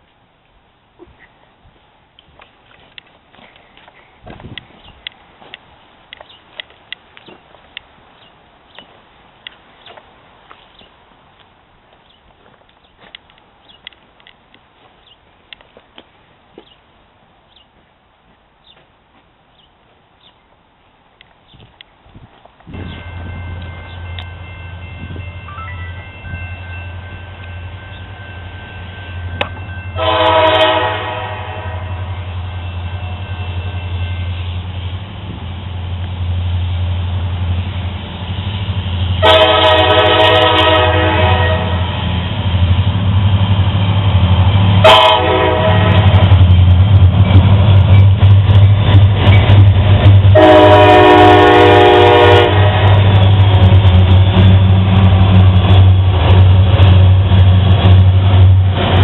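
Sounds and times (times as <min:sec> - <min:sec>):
diesel locomotive engine rumble: 0:00.0 - 0:59.0
locomotive air horn blasts: 0:29.9 - 0:34.4, 0:39.2 - 0:41.9, 0:44.8 - 0:46.2, 0:50.3 - 0:53.2.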